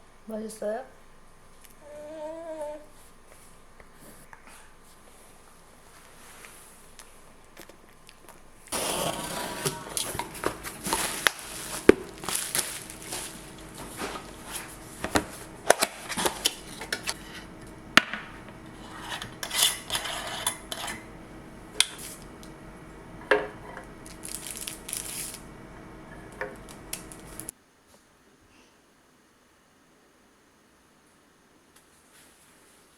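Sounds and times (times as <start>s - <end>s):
faint steady hum: 0.0s - 32.4s
sharp knocks and scrapes: 8.7s - 21.1s
dishes and utensils clattering: 8.8s - 21.1s.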